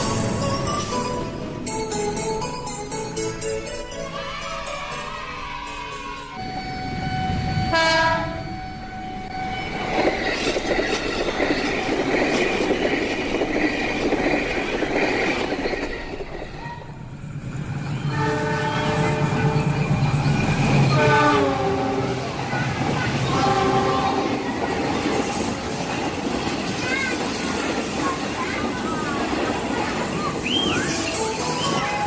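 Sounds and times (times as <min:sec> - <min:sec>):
train running on rails: 0:00.0 - 0:32.0
train horn: 0:07.7 - 0:08.6, 0:18.1 - 0:19.7, 0:20.9 - 0:22.3, 0:23.2 - 0:24.5.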